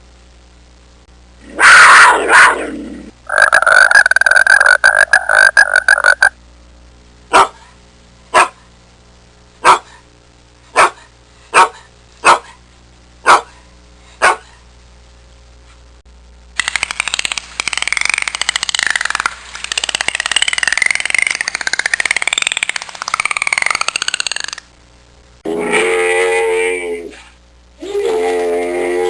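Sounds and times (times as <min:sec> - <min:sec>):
dog barking: 0:02.0 - 0:02.6, 0:07.3 - 0:07.7, 0:08.3 - 0:08.6, 0:09.6 - 0:10.0, 0:10.7 - 0:12.6, 0:13.2 - 0:13.6, 0:14.2 - 0:14.6
rapid pulsing rasping animal call: 0:03.3 - 0:06.3.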